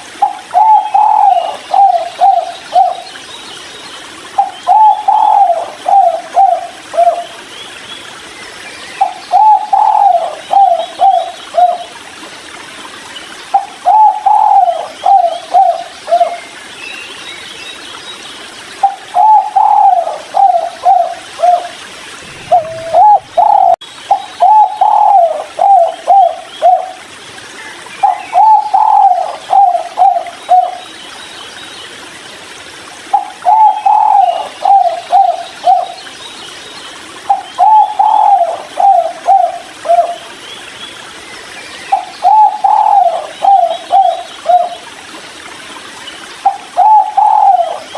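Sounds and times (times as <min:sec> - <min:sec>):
dove cooing: 0:00.2 - 0:03.0, 0:04.4 - 0:07.3, 0:09.3 - 0:11.9, 0:13.6 - 0:16.4, 0:18.8 - 0:27.0, 0:28.0 - 0:30.8, 0:33.1 - 0:36.0, 0:37.3 - 0:40.2, 0:42.0 - 0:44.8, 0:46.4 - 0:47.9
small birds chirping: 0:13.5 - 0:26.8.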